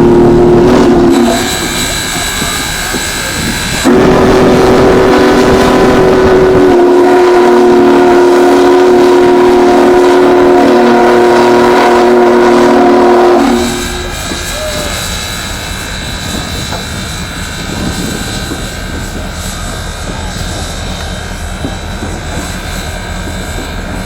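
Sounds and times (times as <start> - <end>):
train horn long blast: 0.0 - 1.8, 3.8 - 15.0.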